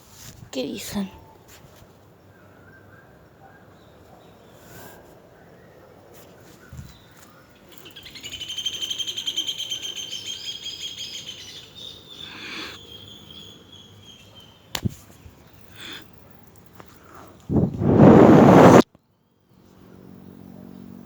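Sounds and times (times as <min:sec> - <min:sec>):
bird singing rapid trill: 0:07.6 - 0:14.7.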